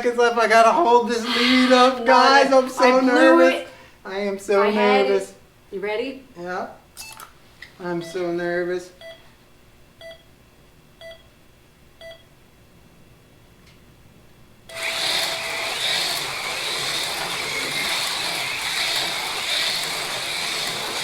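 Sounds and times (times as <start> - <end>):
countdown beeps: 8.0 - 8.3
slot car motors whining: 14.7 - 21.0.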